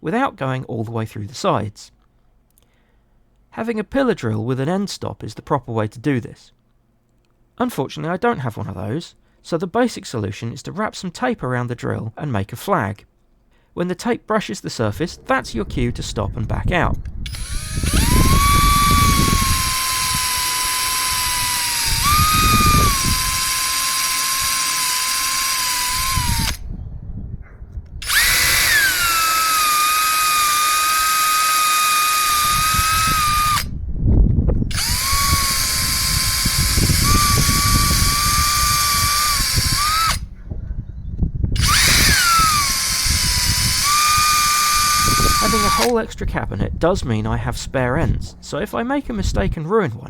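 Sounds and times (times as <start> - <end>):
drill bit cutting rumble: 17.2 - 26.6, 28.0 - 33.7, 34.7 - 40.2, 41.6 - 46.0
electric drill motor whine: 17.2 - 26.6, 28.0 - 33.7, 34.7 - 40.2, 41.6 - 46.0.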